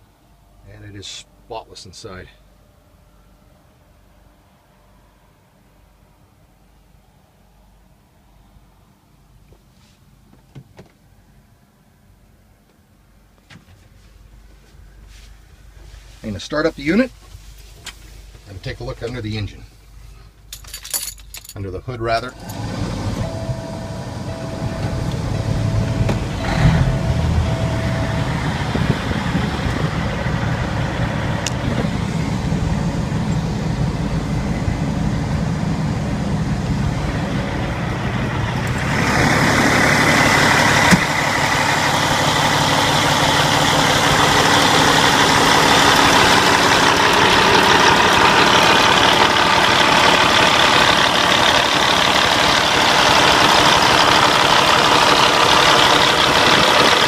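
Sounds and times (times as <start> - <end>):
diesel engine starting and idling: 22.0 - 57.0.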